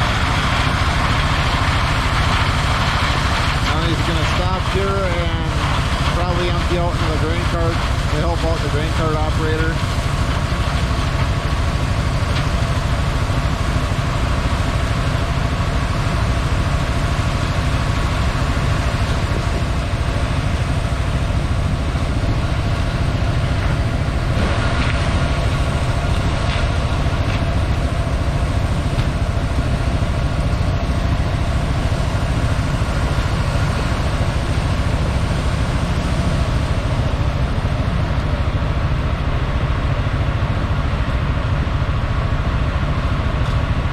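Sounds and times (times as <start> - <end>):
diesel machinery engine drone: 0.0 - 43.9.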